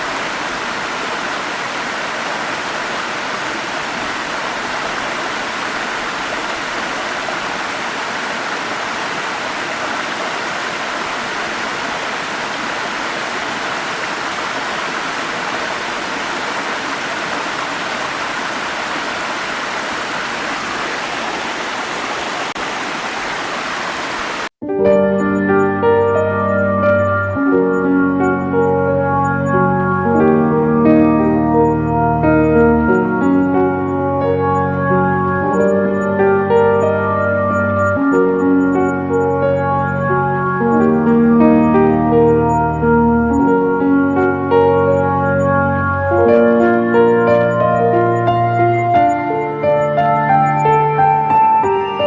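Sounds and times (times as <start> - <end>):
waterfall rushing: 0.0 - 24.5.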